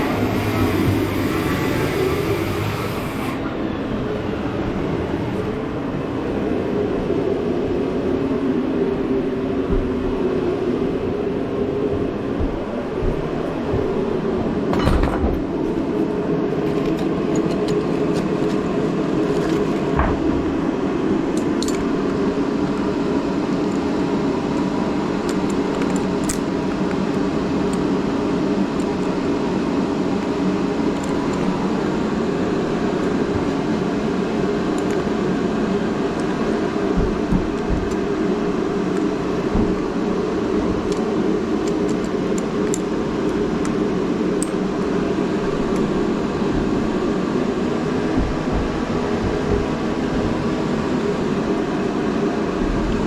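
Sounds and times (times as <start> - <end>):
reciprocating saw cutting: 0.0 - 3.5.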